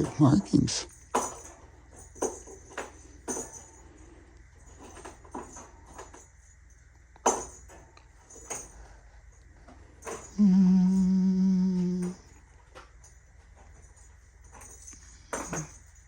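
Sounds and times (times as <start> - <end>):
person humming: 10.3 - 12.3.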